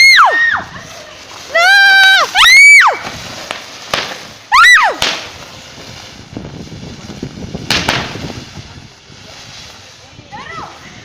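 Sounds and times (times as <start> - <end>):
sparklers popping and crackling: 0.0 - 11.0.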